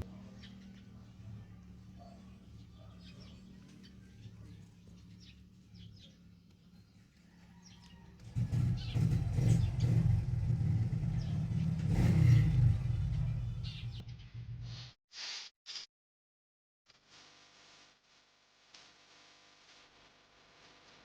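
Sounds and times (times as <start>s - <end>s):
vehicle engine passing: 0.0s - 6.4s, 8.0s - 14.6s
birds chirping faintly: 0.0s - 14.4s.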